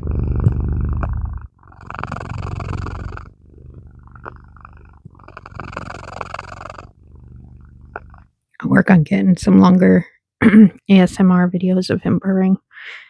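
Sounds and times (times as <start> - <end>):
cat purring: 0.0 - 8.3.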